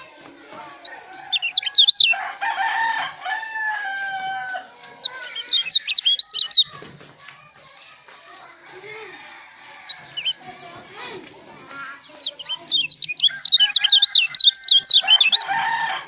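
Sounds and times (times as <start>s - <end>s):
songbird chirped whistles: 0.7s - 2.2s, 4.8s - 6.8s, 9.8s - 10.5s, 11.7s - 15.6s
rooster crowing: 0.8s - 4.8s, 13.2s - 16.0s.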